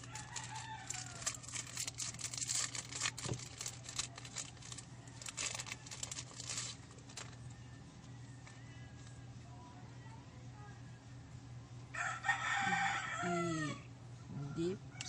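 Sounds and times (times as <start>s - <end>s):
wrapper crinkling and tearing: 0.0s - 7.5s.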